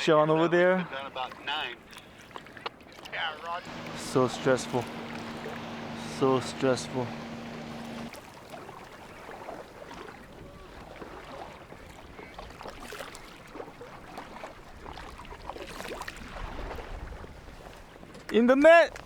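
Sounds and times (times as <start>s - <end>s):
water lapping and splashing: 0.0s - 19.0s.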